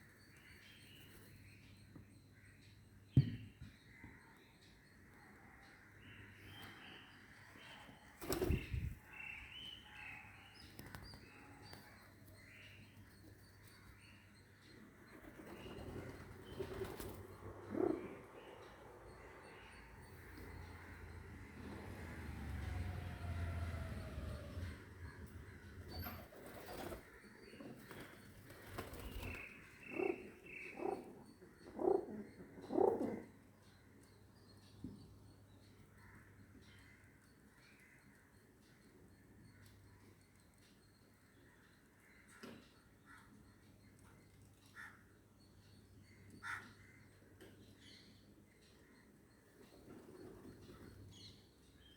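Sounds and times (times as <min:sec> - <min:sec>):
small birds chirping: 0:00.0 - 0:51.9
pigeon cooing: 0:29.9 - 0:33.3.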